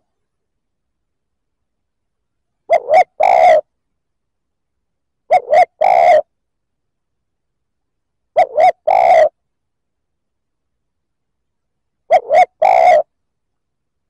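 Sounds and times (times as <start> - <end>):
dove cooing: 2.7 - 3.7, 5.3 - 6.3, 8.4 - 9.4, 12.1 - 13.1.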